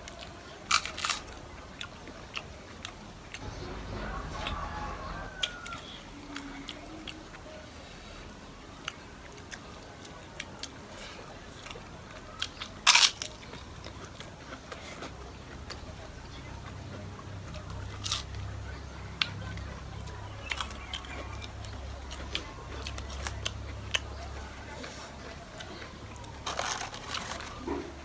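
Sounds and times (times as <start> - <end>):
crunchy bites and chewing: 0.1 - 7.2, 8.9 - 18.6, 19.2 - 28.0
faint low hum: 3.4 - 10.4.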